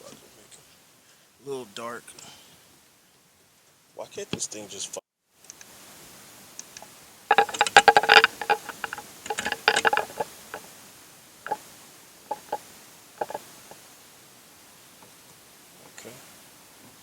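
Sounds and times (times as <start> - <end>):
plastic clicks and rattles: 6.6 - 10.7, 12.3 - 12.6, 13.2 - 13.4.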